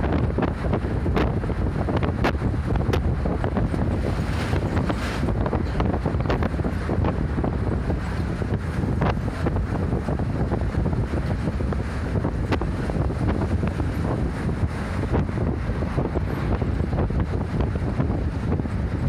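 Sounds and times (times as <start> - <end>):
bus road and engine rumble: 0.0 - 19.0
rushing wind: 0.0 - 19.0
rattles and knocks: 3.6 - 6.5.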